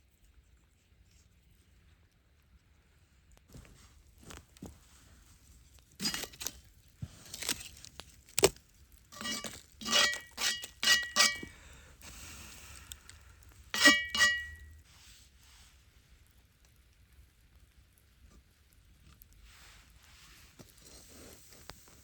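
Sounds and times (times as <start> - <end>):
tableware clinking: 9.2 - 11.5, 13.8 - 14.6.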